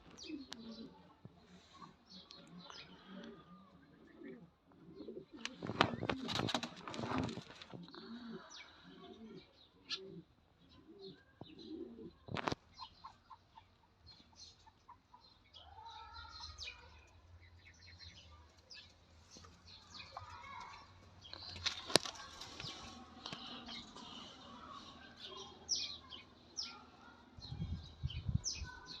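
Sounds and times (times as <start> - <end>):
birds chirping and calling: 0.0 - 29.0
wings flapping: 5.6 - 7.7.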